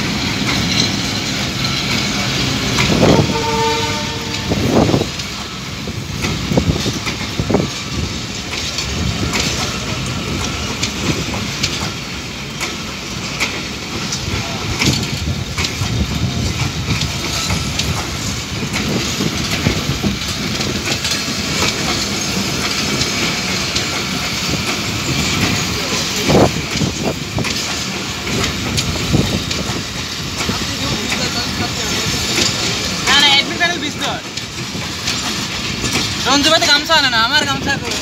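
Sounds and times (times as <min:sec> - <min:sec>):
train wheels rumbling on rails: 0:00.0 - 0:38.0
clicks and clatter of wheels: 0:12.6 - 0:36.9.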